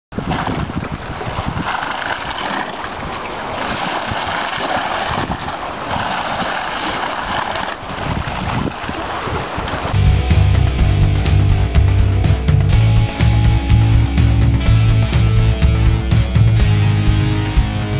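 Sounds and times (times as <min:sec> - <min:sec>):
wind buffeting microphone: 0:00.1 - 0:10.0.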